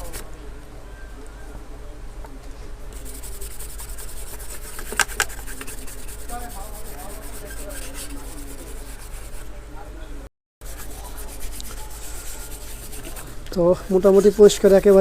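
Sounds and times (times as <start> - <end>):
brush scrubbing circuit board: 2.9 - 9.5, 10.6 - 15.0.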